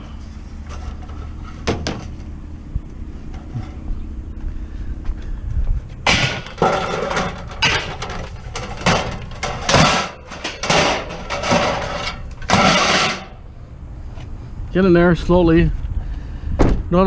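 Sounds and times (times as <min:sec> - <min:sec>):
scrap metal scraping and clattering: 0:00.0 - 0:02.4, 0:03.3 - 0:03.9, 0:06.0 - 0:13.4
low steady rumble: 0:00.0 - 0:17.0.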